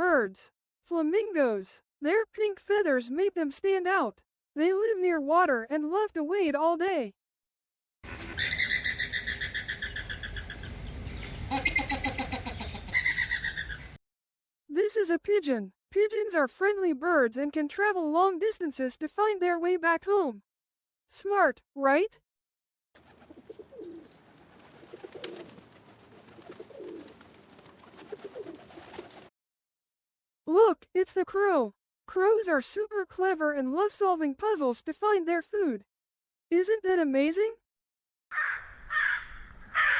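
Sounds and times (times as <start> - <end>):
flamingo calls: 23.0 - 29.2
lower-pitched bird notes: 23.0 - 29.3
pigeon cooing: 23.0 - 29.3.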